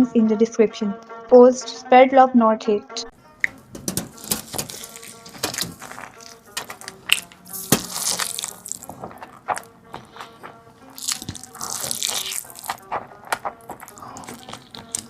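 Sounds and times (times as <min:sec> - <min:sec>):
soft background music: 0:00.0 - 0:15.0
mouth smacks and clicks: 0:03.4 - 0:15.0
person chewing and slurping: 0:04.1 - 0:15.0.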